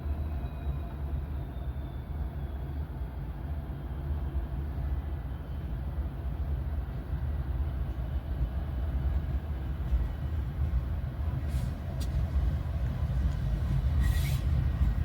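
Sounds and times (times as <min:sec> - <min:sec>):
train rumbling: 0:00.0 - 0:15.0
brief hiss: 0:14.0 - 0:14.6.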